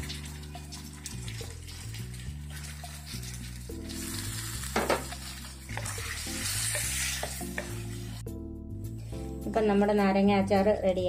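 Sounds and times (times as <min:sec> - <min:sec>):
lemons sizzling in hot oil: 0:00.0 - 0:08.3
soft background music: 0:00.0 - 0:11.0
spatula scraping pan: 0:00.2 - 0:08.2.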